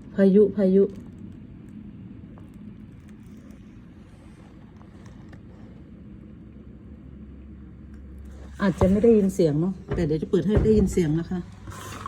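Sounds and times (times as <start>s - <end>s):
car driving rumble inside cabin: 0.9s - 11.7s.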